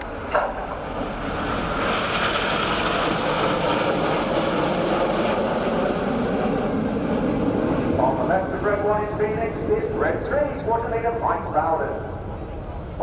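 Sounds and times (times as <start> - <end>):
jets flying past: 0.0 - 13.0.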